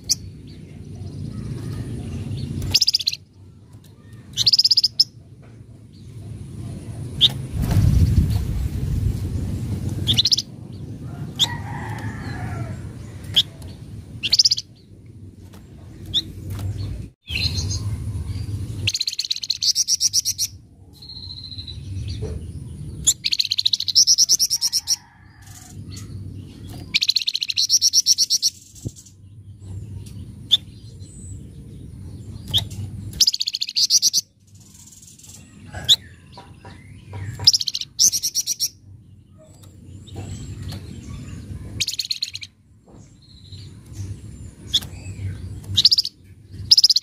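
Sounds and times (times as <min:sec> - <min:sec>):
songbird chirping and trilling: 0:00.0 - 0:47.0
low rumble: 0:05.2 - 0:19.7.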